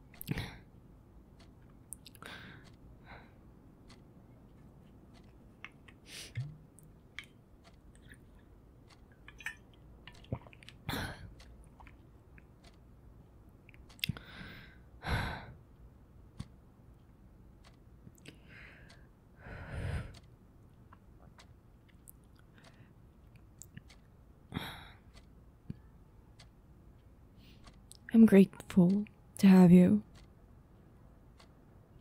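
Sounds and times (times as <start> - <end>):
faint chewing of food: 3.9 - 12.8.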